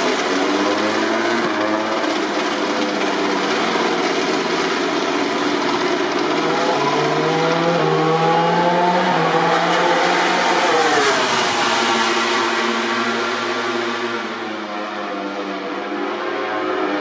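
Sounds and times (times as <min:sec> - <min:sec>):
racing motorcycle engines revving: 0:00.0 - 0:17.0.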